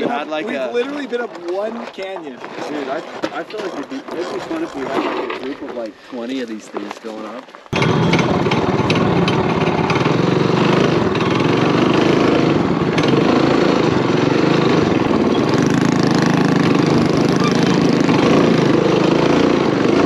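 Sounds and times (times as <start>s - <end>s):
small engine running steadily: 7.7s - 20.0s.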